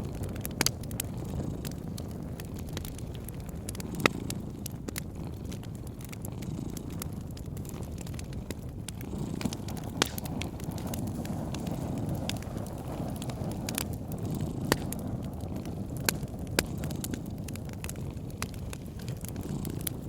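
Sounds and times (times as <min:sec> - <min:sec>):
cat purring: 0:00.0 - 0:20.0
wood fire crackling: 0:00.0 - 0:20.0.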